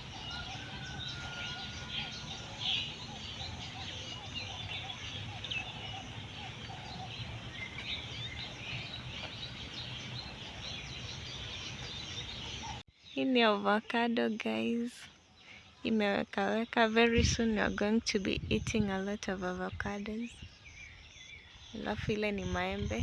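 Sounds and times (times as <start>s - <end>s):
loud bird call: 0.0s - 12.8s
low repeated bird call: 0.0s - 13.3s
birds chirping: 0.0s - 23.0s.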